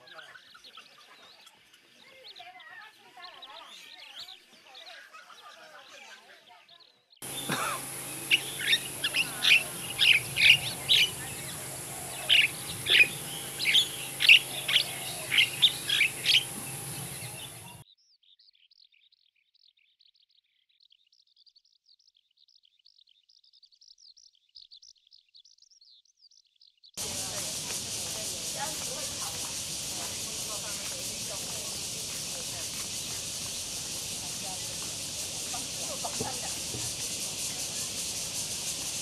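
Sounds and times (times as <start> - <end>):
faint high chirping: 0.0 - 19.3
steady hum: 7.2 - 17.8, 27.0 - 39.0
bird sharp repeated chirps: 7.2 - 19.3.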